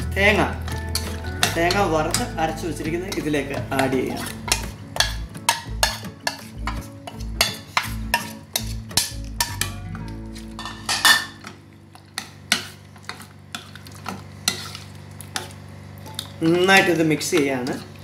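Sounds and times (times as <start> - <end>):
ladle stirring: 0.3 - 18.0
metal utensils scraping steel pot: 0.6 - 11.5, 14.4 - 14.8.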